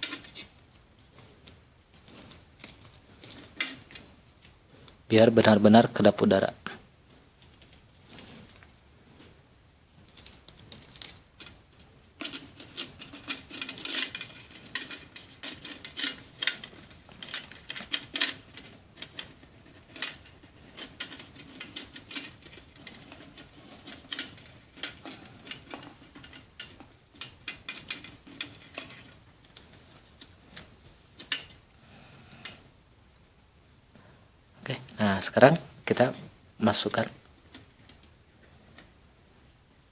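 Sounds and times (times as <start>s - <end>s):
scraping and rubbing: 0.0s - 4.9s, 7.1s - 9.4s, 10.0s - 31.6s.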